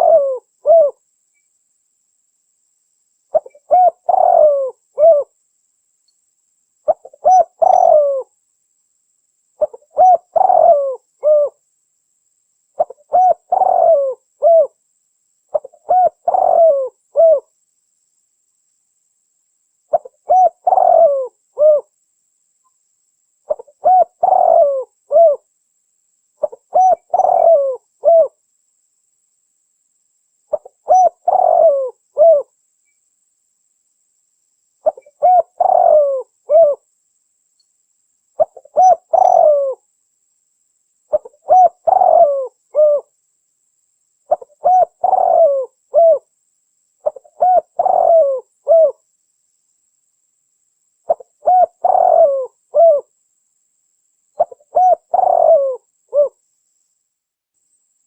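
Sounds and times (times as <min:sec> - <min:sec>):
dove cooing: 0:00.0 - 0:01.0, 0:03.3 - 0:05.3, 0:06.9 - 0:08.3, 0:09.6 - 0:11.6, 0:12.8 - 0:14.8, 0:15.5 - 0:17.5, 0:19.9 - 0:21.9, 0:23.5 - 0:25.5, 0:26.4 - 0:28.4, 0:30.5 - 0:32.5, 0:34.8 - 0:36.8, 0:38.4 - 0:39.8, 0:41.1 - 0:43.1, 0:44.3 - 0:46.3, 0:47.0 - 0:49.0, 0:51.1 - 0:53.1, 0:54.4 - 0:56.4.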